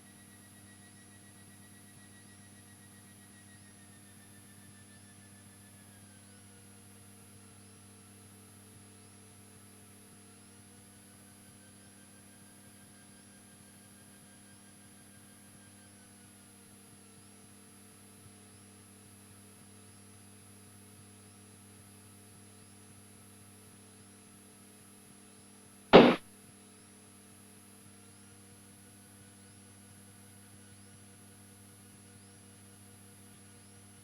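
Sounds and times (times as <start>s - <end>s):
faint radio tones: 26.0s - 26.2s
radio click: 26.0s - 26.2s.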